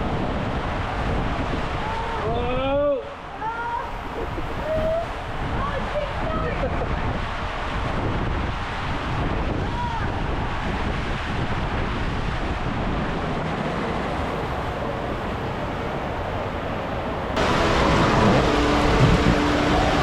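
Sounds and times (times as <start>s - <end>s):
steady rushing noise: 4.0s - 20.0s
loud busy noise: 14.2s - 20.0s.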